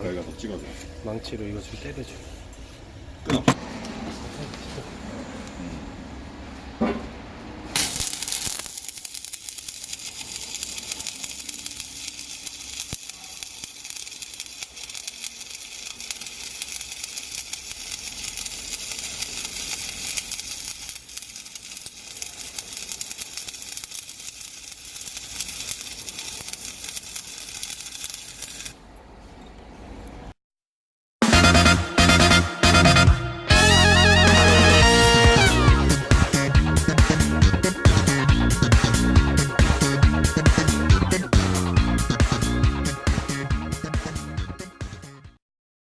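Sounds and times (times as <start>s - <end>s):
welding arc crackling and sizzling: 7.7s - 28.8s.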